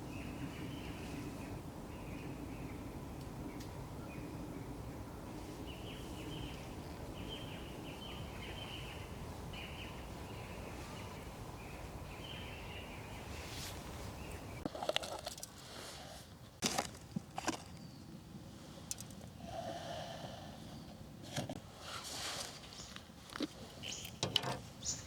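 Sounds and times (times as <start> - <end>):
bird chirping: 0.0 - 13.4, 23.8 - 25.0
low forest background noise: 0.0 - 25.0.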